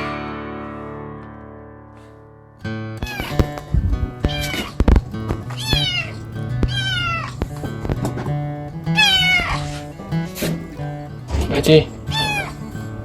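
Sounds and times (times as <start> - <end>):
acoustic guitar music: 0.0 - 13.0
cat meowing: 5.6 - 7.3, 12.1 - 12.5.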